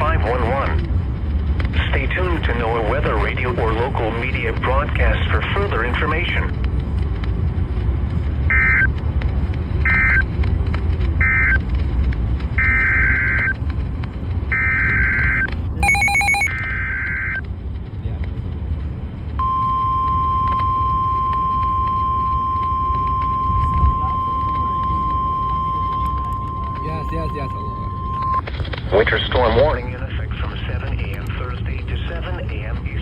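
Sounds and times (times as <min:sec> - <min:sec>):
steady warning alarm tone: 0:12.6 - 0:13.5, 0:14.5 - 0:17.4, 0:19.4 - 0:28.4
warbling data tones: 0:14.5 - 0:17.4, 0:19.4 - 0:29.4.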